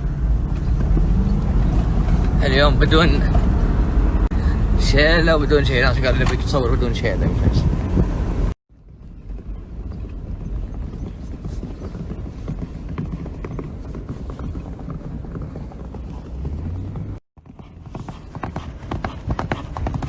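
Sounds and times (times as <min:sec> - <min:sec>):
horse hoofbeats on sand: 0:00.4 - 0:02.4, 0:08.9 - 0:20.0.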